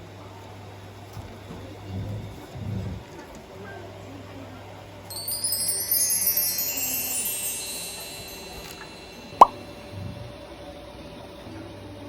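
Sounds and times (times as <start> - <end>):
descending sparkling chimes: 5.1 - 10.1.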